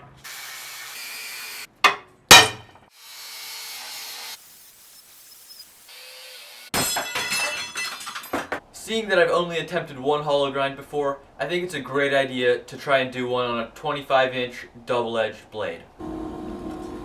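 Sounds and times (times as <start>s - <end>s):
sharp metal strikes: 1.8s - 2.8s.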